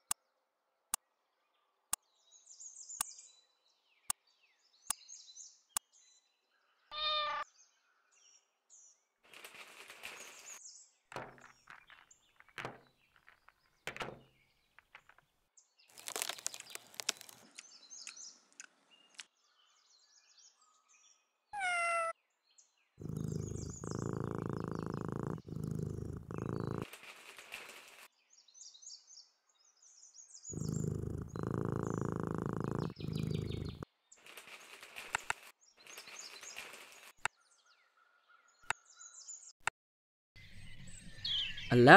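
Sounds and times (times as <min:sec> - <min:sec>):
cat meowing: 0:06.9 - 0:07.4, 0:21.6 - 0:22.1
soft rustles: 0:09.3 - 0:10.6, 0:26.2 - 0:28.1, 0:33.6 - 0:37.2
birds chirping: 0:11.2 - 0:15.3, 0:23.0 - 0:28.0, 0:30.4 - 0:37.8
cat purring: 0:23.0 - 0:28.0, 0:30.5 - 0:35.5.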